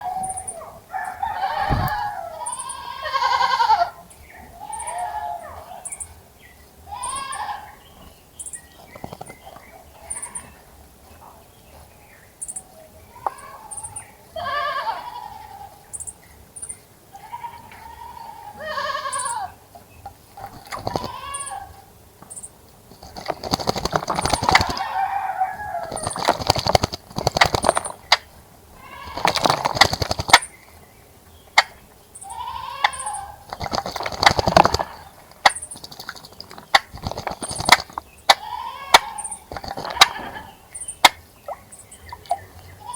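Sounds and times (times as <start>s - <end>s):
small bird chirping: 0.0s - 14.8s, 15.4s - 17.5s, 18.9s - 25.1s, 25.8s - 42.9s
goats bleating: 1.2s - 5.6s, 6.8s - 7.8s, 13.1s - 15.8s, 17.1s - 19.6s, 20.8s - 21.9s, 28.7s - 29.3s, 32.2s - 33.4s, 38.3s - 40.6s, 42.7s - 42.9s
bird splashing in water: 1.4s - 2.5s, 20.4s - 21.5s, 22.9s - 28.2s, 28.8s - 30.5s, 33.5s - 38.4s, 39.0s - 40.2s.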